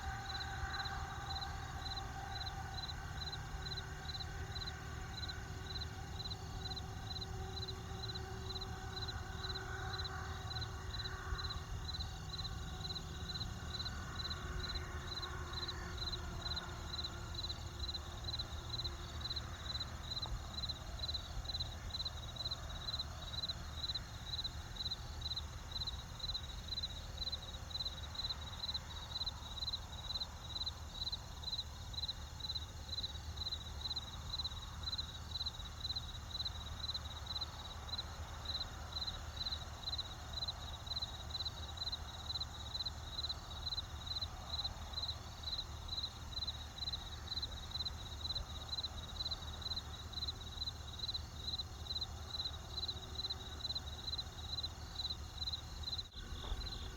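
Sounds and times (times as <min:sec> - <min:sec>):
crickets chirping: 0:00.0 - 0:56.9
low steady rumble: 0:56.1 - 0:56.9.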